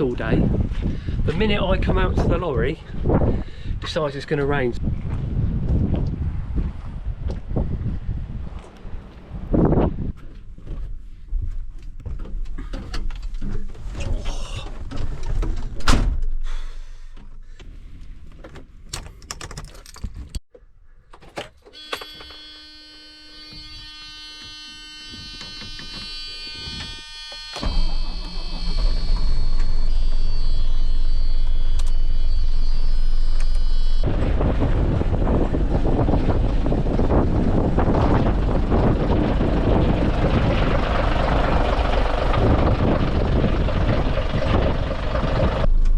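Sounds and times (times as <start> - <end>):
electronic warning buzzer: 21.7 - 34.1
diesel engine starting and idling: 27.6 - 45.9.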